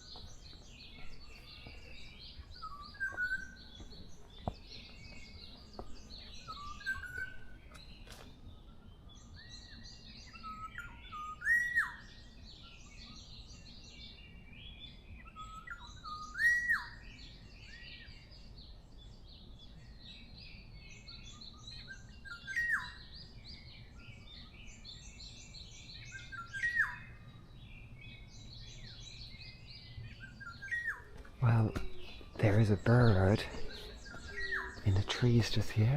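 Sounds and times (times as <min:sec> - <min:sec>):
small birds chirping: 0:00.0 - 0:35.9
bird whistling looping phrase: 0:30.6 - 0:35.2.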